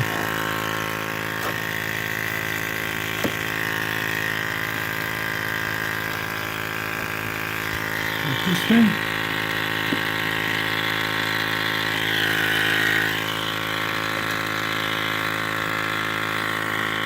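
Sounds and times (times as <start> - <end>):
buzz with high whine: 0.0 - 17.0.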